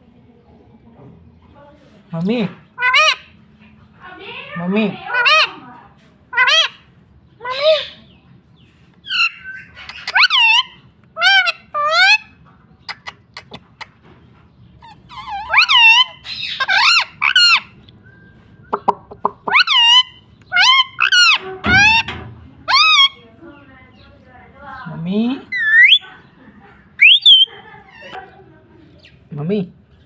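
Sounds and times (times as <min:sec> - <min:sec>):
parrot squawking: 0:02.8 - 0:03.3, 0:04.9 - 0:05.6, 0:06.3 - 0:06.8, 0:07.4 - 0:08.0, 0:09.0 - 0:13.9, 0:14.8 - 0:17.8, 0:18.8 - 0:23.2, 0:25.5 - 0:26.3, 0:26.9 - 0:28.4.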